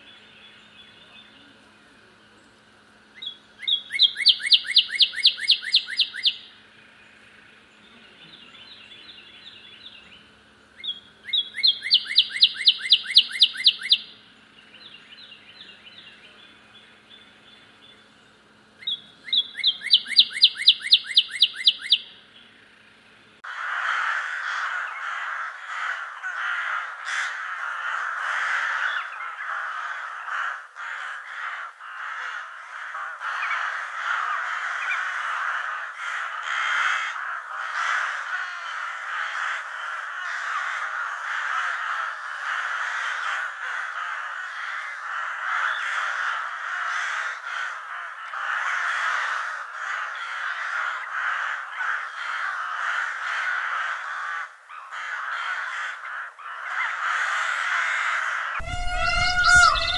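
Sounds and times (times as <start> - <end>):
crows cawing: 23.4 - 59.9.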